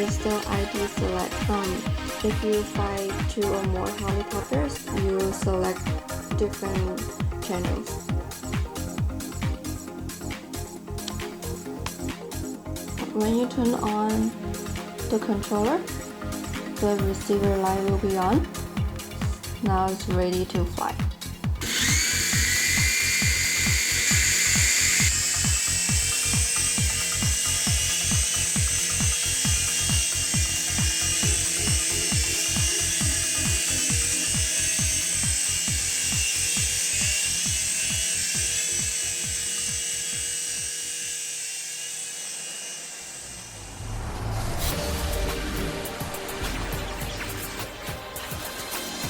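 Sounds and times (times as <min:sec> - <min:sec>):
background music with a beat: 0:00.0 - 0:40.4, 0:44.7 - 0:49.0
toy helicopter rotors whining: 0:21.6 - 0:43.7.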